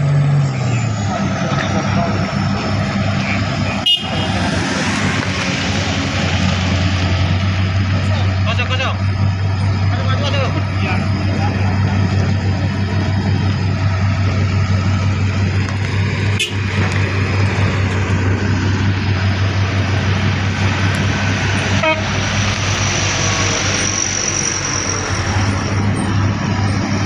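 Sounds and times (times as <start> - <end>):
heavy diesel engine humming: 0.0 - 27.0.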